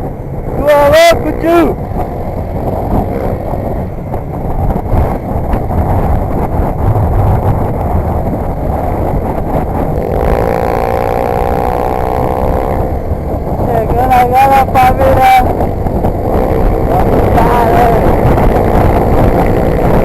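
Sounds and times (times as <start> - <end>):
motorcycle engine accelerating: 0.0 - 20.0
wind rush: 0.0 - 20.0.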